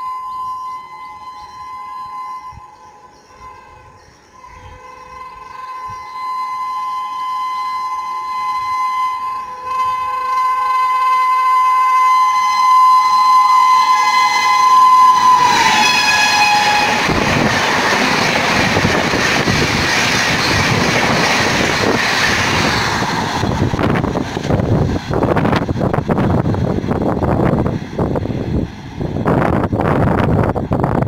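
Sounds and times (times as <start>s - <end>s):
locomotive horn blast: 0.0s - 19.2s.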